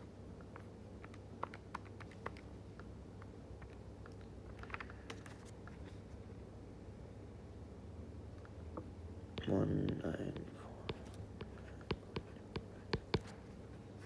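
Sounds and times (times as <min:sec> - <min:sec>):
low steady hum: 0:00.0 - 0:14.0
calculator key taps: 0:09.4 - 0:13.3.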